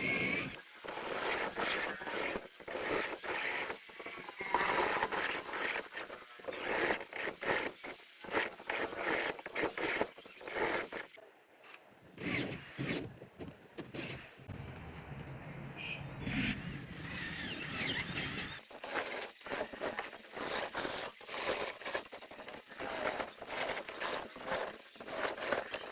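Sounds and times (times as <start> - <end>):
hand tool scraping wood: 0.0 - 11.2, 17.9 - 25.9.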